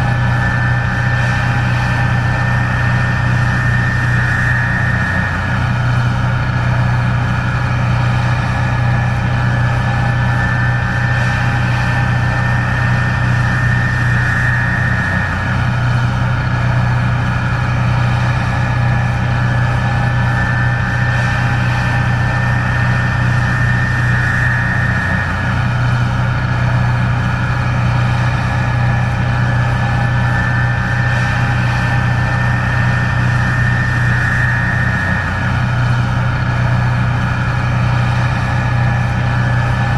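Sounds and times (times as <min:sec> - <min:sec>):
combine engine drone: 0:00.0 - 0:39.9
high machine whine: 0:00.0 - 0:39.9.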